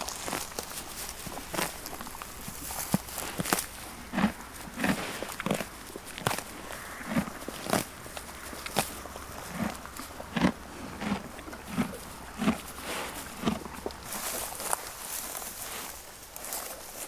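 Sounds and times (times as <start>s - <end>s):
horse hooves walking: 0.0s - 17.0s.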